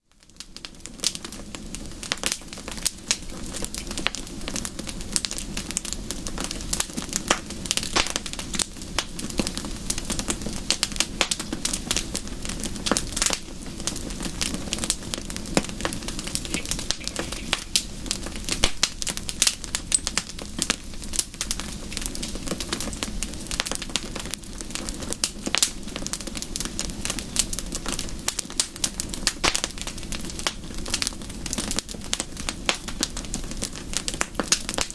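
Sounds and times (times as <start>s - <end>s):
wood fire crackling: 0.1s - 34.9s
steady rain hiss: 0.2s - 34.9s.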